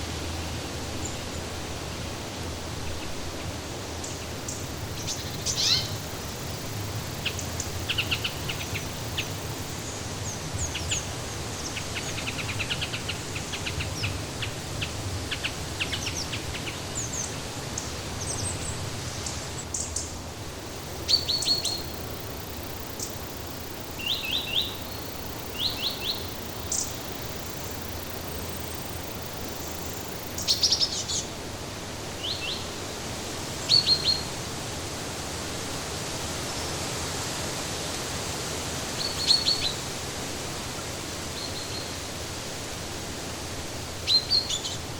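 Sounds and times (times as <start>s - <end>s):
rushing background hiss: 0.0s - 44.9s
songbirds chirping and trilling: 3.0s - 31.4s.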